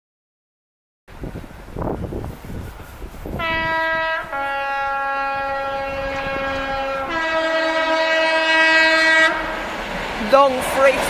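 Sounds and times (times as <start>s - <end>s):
train rumble: 1.1s - 11.0s
two-tone locomotive horn: 3.3s - 9.7s.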